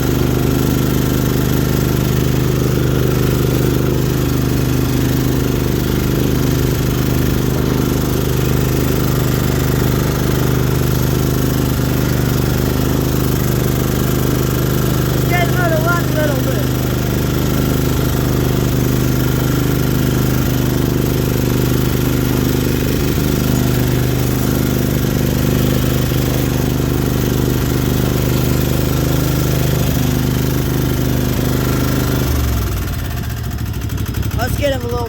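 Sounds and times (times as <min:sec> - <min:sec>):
lawnmower engine running: 0:00.0 - 0:35.0.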